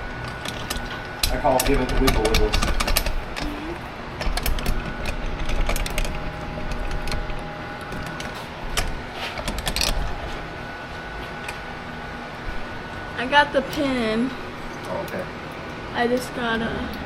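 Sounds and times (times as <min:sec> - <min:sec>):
metal hardware clicks and rattles: 0:00.2 - 0:03.6, 0:04.2 - 0:10.0.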